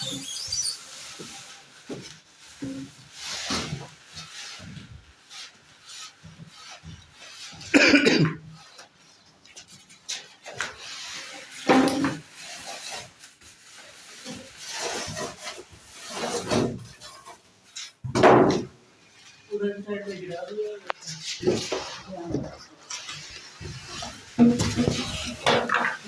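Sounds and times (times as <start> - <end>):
packaging rubbing and scraping: 0.0 - 18.0, 20.7 - 26.0.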